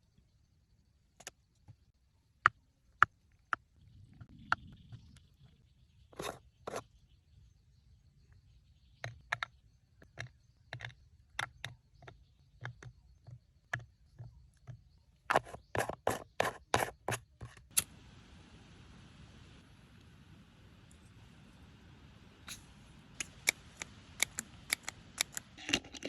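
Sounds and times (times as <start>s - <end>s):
sharp clicks and knocks: 23.2s - 26.0s.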